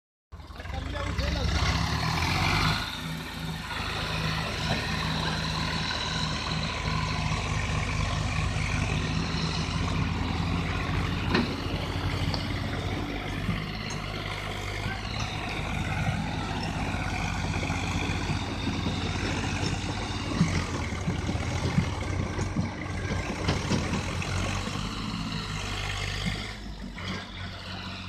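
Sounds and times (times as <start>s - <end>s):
tractor diesel engine running: 0.4s - 28.0s
knocks and rattles: 8.8s - 24.9s.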